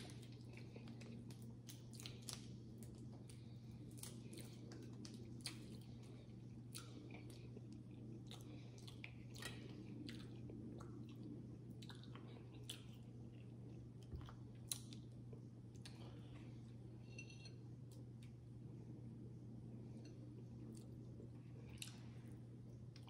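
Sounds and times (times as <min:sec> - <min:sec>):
close-miked chewing: 0:00.0 - 0:16.5
steady low hum: 0:00.0 - 0:23.0.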